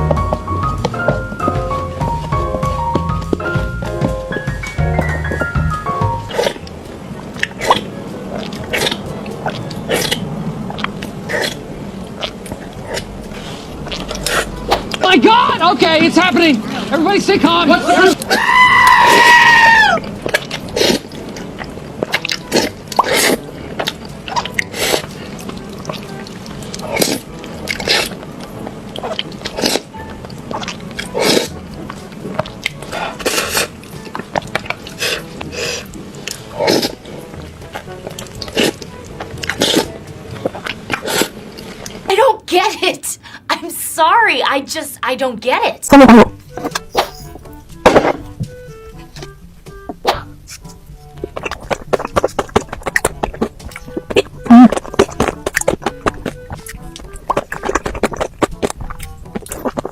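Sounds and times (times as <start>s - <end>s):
person biting and chewing food: 0.0s - 15.6s, 17.9s - 42.1s, 46.4s - 59.9s
background music: 0.0s - 59.9s
wet mouth clicks: 6.2s - 6.8s, 7.4s - 15.0s, 20.0s - 42.0s, 46.6s - 59.9s.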